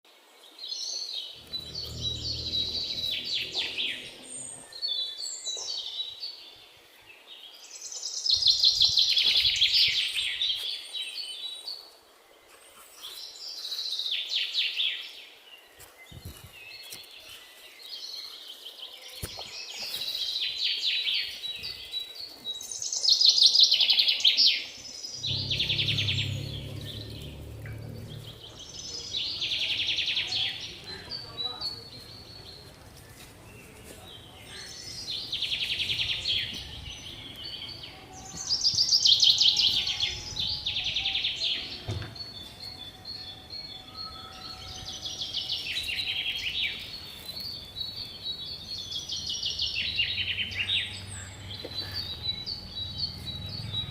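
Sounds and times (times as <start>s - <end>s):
low rumble: 1.4s - 5.1s, 25.1s - 31.0s, 49.8s - 53.9s.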